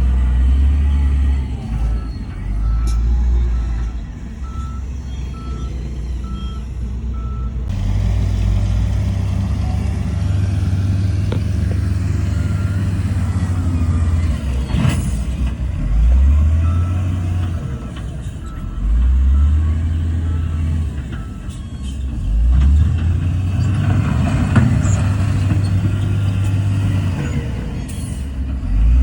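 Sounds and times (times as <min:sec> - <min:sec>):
diesel machinery engine drone: 0:00.0 - 0:29.0
reversing alarm beeping: 0:00.6 - 0:07.6, 0:16.2 - 0:22.0.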